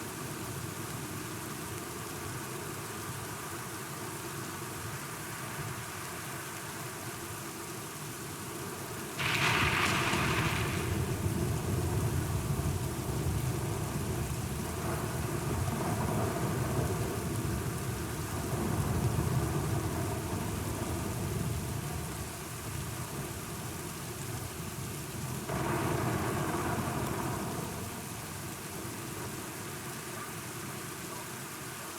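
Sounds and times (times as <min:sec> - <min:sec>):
steady rain: 0:00.0 - 0:31.9
low rolling thunder: 0:09.2 - 0:23.3, 0:25.2 - 0:29.4.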